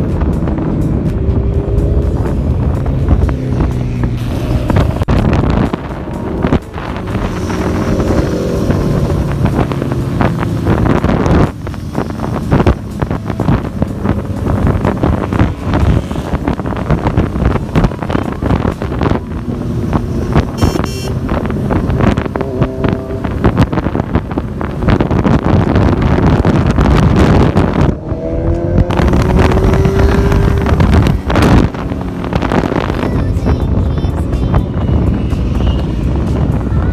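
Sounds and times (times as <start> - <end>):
motorcycle engine running: 0.0 - 36.9
wind buffeting microphone: 0.0 - 36.9
brief high-pitched tone: 20.5 - 21.2.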